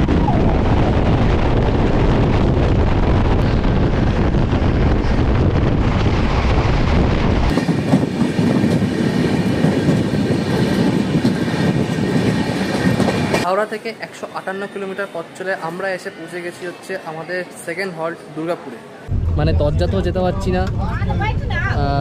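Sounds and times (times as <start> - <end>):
train rumbling and rattling: 0.0 - 13.8, 19.1 - 22.0.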